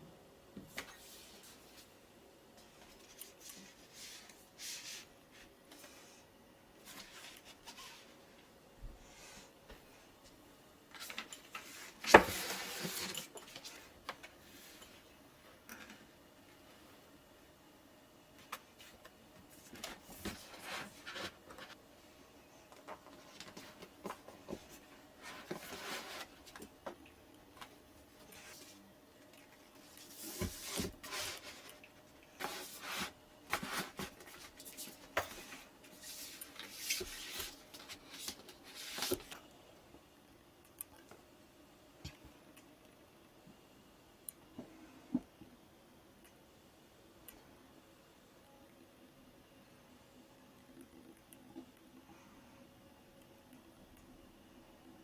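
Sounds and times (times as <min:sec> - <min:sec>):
rustling and scraping: 0:10.9 - 0:15.1, 0:18.4 - 0:21.8, 0:22.8 - 0:26.7, 0:29.7 - 0:39.4.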